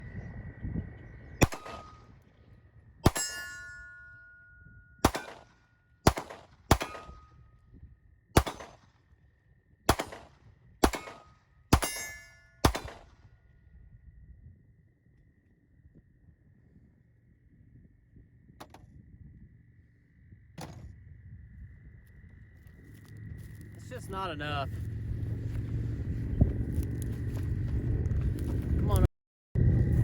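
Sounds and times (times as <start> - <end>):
single gunshots: 1.4 - 2.1, 3.0 - 3.4, 5.0 - 7.3, 8.4 - 8.9, 9.9 - 13.2
metallic ring of steel target: 1.4 - 2.2, 3.0 - 7.6, 10.0 - 13.3.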